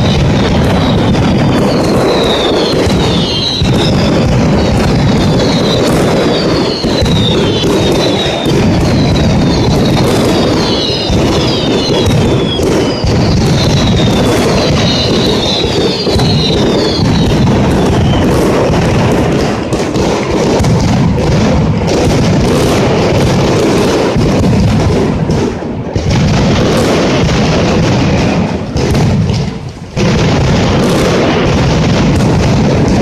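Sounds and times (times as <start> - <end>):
falling firework whistles: 0.0 - 33.0
firecracker barrage: 0.0 - 33.0.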